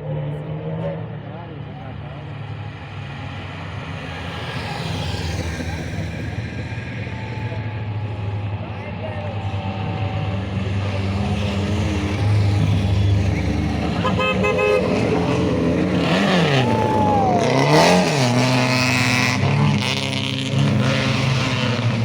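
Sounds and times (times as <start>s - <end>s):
rally car engines revving: 0.0s - 22.0s
car horn toot: 13.9s - 16.8s.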